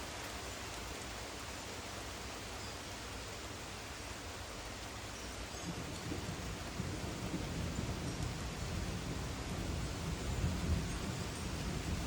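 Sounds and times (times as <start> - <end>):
gusting wind: 0.0 - 12.0
rain hissing: 0.0 - 12.0
thunder rumbling: 5.7 - 12.0.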